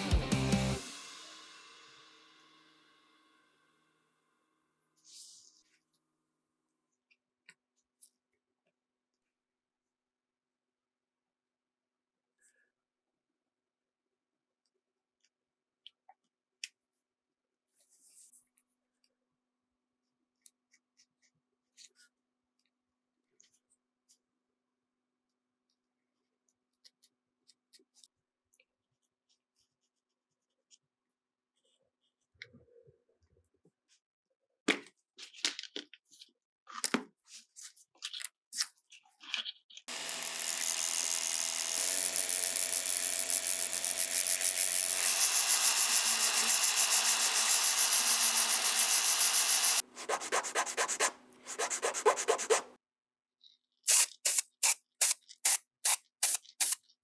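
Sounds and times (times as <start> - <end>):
small power tool running: 0.0 - 2.7, 39.9 - 52.8
scraping and rubbing strokes: 48.6 - 52.8.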